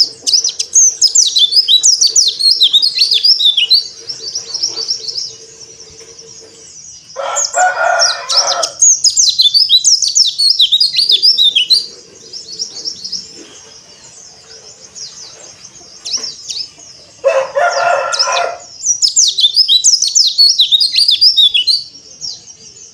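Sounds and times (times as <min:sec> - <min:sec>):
bird twittering: 0:00.0 - 0:22.9
rooster crowing: 0:07.2 - 0:08.8, 0:16.9 - 0:18.8.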